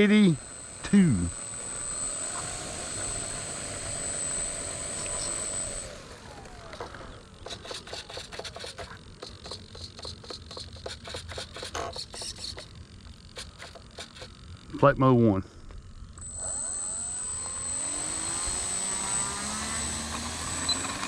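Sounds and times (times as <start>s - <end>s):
electric motor and propeller whine: 0.0s - 21.0s
irregular clicks and crackles: 4.8s - 14.8s.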